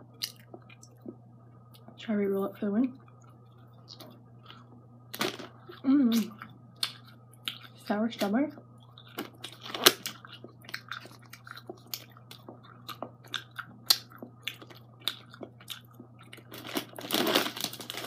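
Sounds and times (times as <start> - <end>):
chewing mouth sounds: 8.8 - 16.5.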